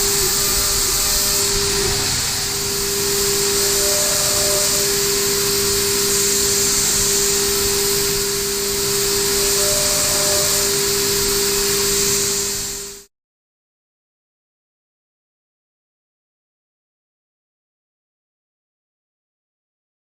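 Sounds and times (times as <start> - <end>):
spindle whine: 0.0 - 13.1.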